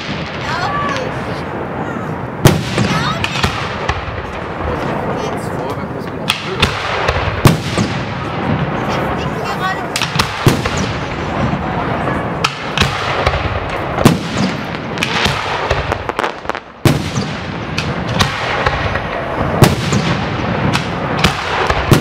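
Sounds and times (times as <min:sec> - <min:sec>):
firework crackle and rumble: 0:00.0 - 0:22.0
firework shells bursting: 0:12.4 - 0:22.0.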